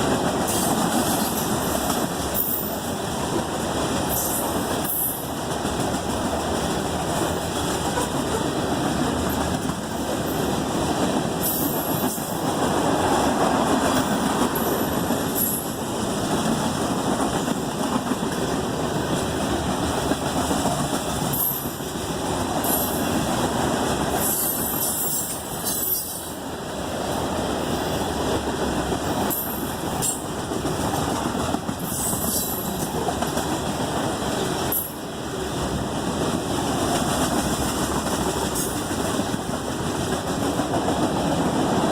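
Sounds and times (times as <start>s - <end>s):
freight train rumbling past: 0.0s - 41.9s
train wheels squealing: 0.5s - 2.9s, 4.1s - 5.4s, 11.4s - 12.4s, 21.3s - 21.9s, 24.2s - 26.4s, 29.2s - 30.3s, 31.8s - 32.9s.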